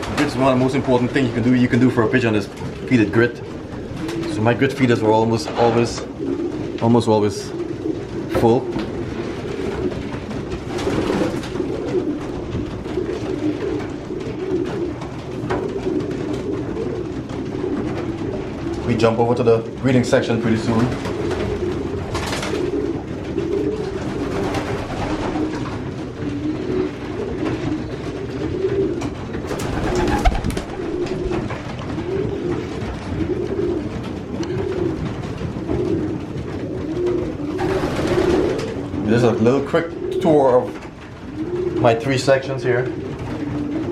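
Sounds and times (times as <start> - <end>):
pigeons cooing: 0.0 - 43.9.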